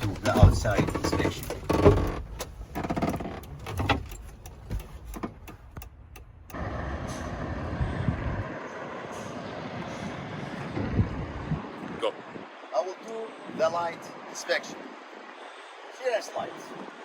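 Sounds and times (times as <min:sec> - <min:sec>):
ignition key clicks and rattles: 0:00.0 - 0:06.5
steady outdoor rush: 0:00.0 - 0:17.0.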